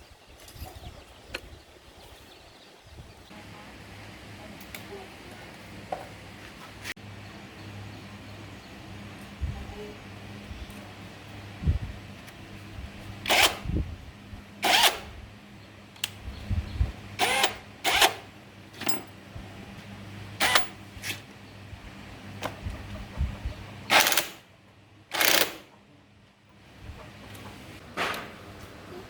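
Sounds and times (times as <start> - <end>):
tools clacking and scraping: 17.2 - 19.2.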